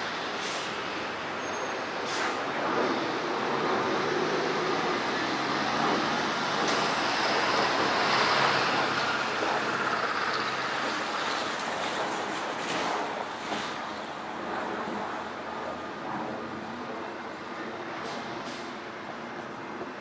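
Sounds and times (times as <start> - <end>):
train rumbling on the line: 0.0 - 14.2.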